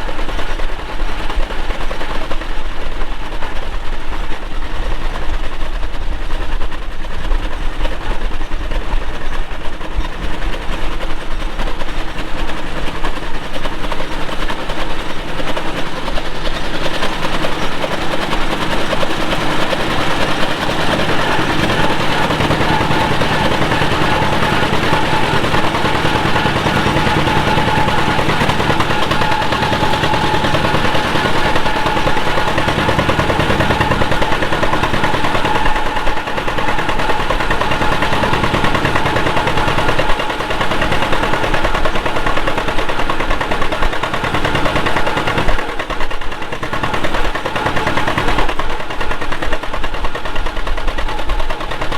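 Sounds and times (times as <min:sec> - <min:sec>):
tractor engine popping exhaust: 0:05.8 - 0:51.9.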